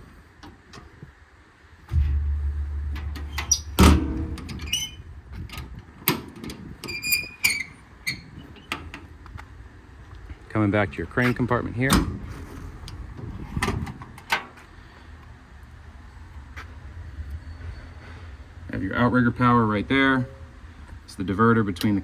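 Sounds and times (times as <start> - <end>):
low rumble: 1.9 - 6.1
metal door clunk: 1.9 - 7.7
metal squeaks: 2.9 - 5.6, 6.8 - 8.8.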